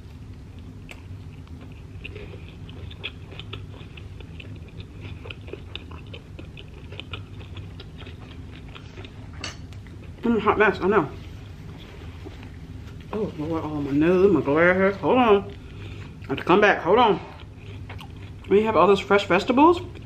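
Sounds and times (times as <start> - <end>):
chewing with mouth clicks: 0.0 - 10.3, 17.1 - 19.0
low steady hum: 0.0 - 20.0.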